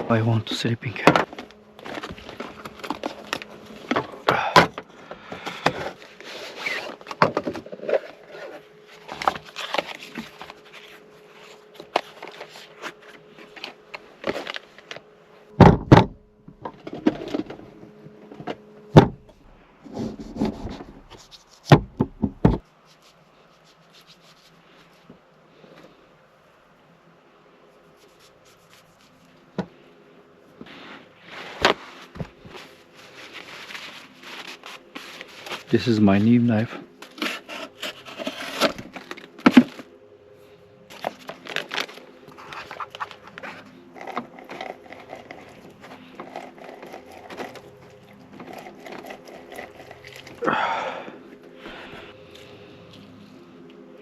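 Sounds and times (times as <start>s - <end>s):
faint steady hum: 0.0s - 54.0s
hands handling objects: 1.0s - 15.1s, 30.6s - 40.0s, 40.9s - 50.5s.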